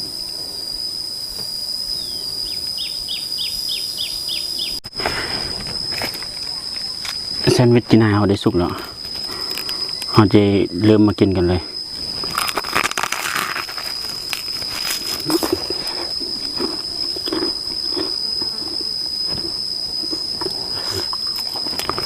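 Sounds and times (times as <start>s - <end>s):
insect drone: 0.0s - 22.0s
person chewing sandwich: 12.2s - 22.0s.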